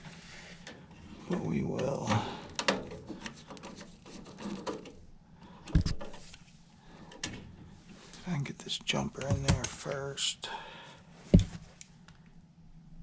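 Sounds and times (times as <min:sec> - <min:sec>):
heavy thump: 0:11.3 - 0:11.6.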